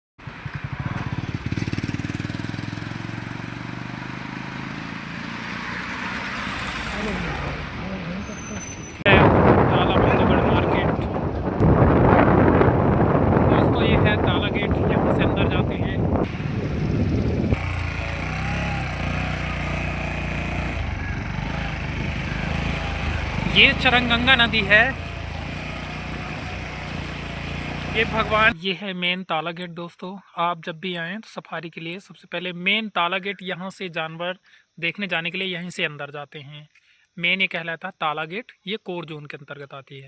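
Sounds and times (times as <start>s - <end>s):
vehicle engine running: 0.2s - 8.6s, 16.0s - 28.6s.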